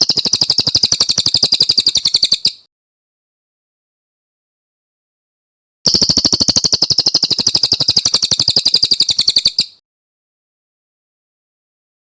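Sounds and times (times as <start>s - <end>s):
bird rolling trill: 0.0s - 2.6s, 5.9s - 9.8s.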